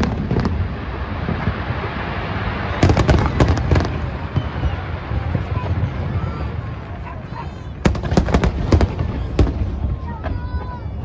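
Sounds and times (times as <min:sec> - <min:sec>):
fireworks booming rumble: 0:00.0 - 0:11.0
fireworks sharp crackling: 0:00.0 - 0:11.0.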